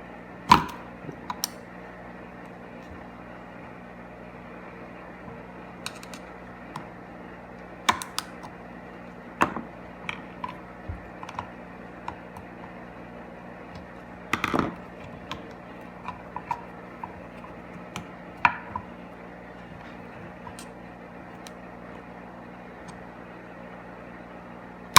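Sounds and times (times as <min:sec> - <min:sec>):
steady low hum: 0:00.0 - 0:24.9
small parts clicking and tapping: 0:05.8 - 0:06.9, 0:07.9 - 0:08.6.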